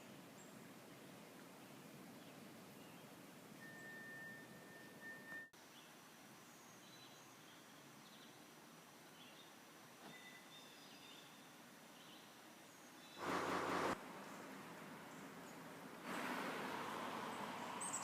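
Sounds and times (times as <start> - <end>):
steady high whistle: 3.6 - 5.5
faint high chirps: 3.6 - 5.6, 10.0 - 11.4.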